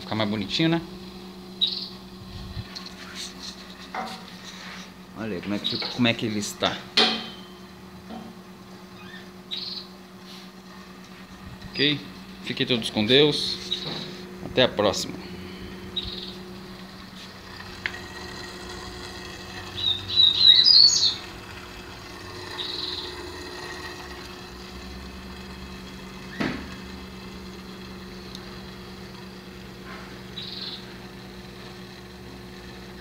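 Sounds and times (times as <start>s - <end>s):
steady low hum: 0.0s - 33.0s
birds chirping: 1.5s - 2.2s, 5.3s - 6.2s, 8.9s - 10.0s, 12.8s - 17.2s, 17.9s - 21.4s, 22.0s - 24.2s, 30.2s - 31.0s
click: 28.3s - 28.5s.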